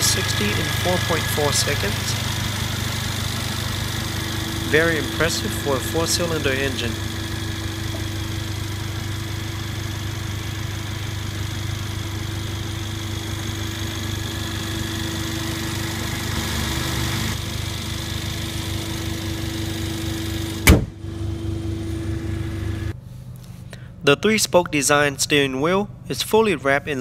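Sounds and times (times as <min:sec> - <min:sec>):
car engine idling: 0:00.0 - 0:23.0
loud thump: 0:20.6 - 0:21.0.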